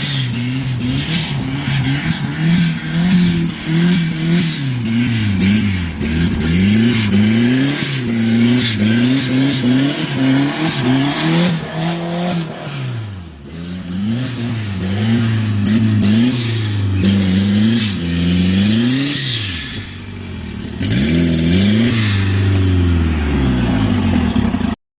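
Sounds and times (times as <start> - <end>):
turbocharged engine revving: 0.0 - 24.8.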